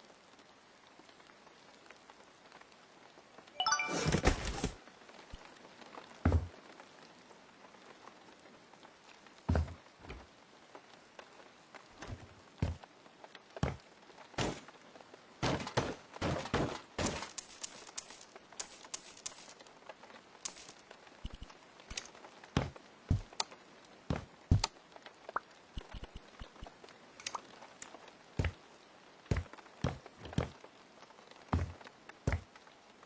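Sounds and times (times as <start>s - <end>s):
knocks and taps of renovation work: 6.3s - 6.5s, 9.5s - 10.3s, 12.0s - 12.9s, 13.6s - 13.8s, 15.4s - 17.4s, 24.1s - 24.7s, 28.4s - 28.6s, 29.3s - 30.6s, 31.6s - 32.5s
bright clinks: 17.0s - 19.7s, 20.4s - 20.8s.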